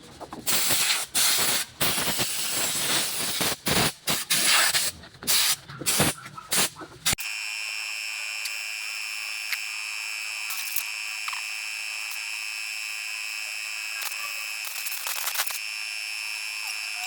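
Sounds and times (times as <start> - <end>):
compressed air hissing: 0.5 - 6.8.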